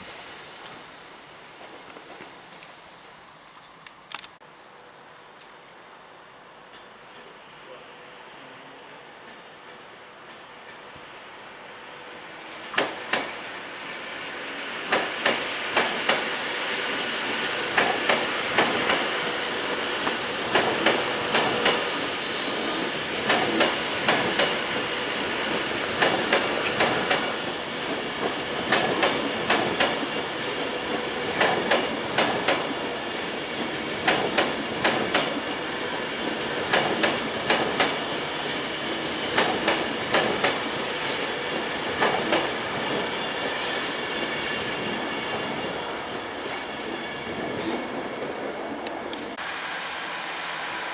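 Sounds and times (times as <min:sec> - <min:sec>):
train rolling rumble: 0:00.0 - 0:50.9
train wheels clicking over rail joints: 0:09.2 - 0:49.7.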